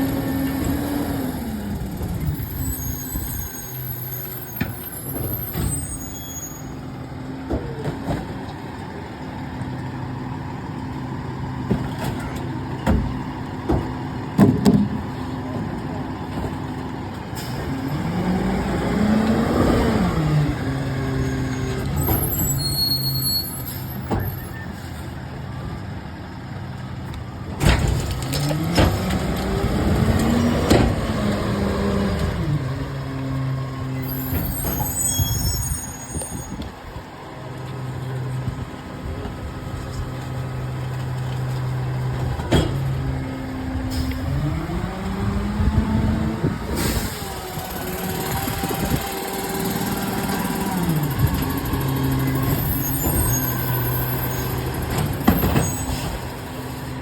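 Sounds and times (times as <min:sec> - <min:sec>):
garbage truck engine revving: 0:16.0 - 0:23.1, 0:27.6 - 0:34.9, 0:41.7 - 0:57.0
air brake hisses: 0:46.7 - 0:47.4.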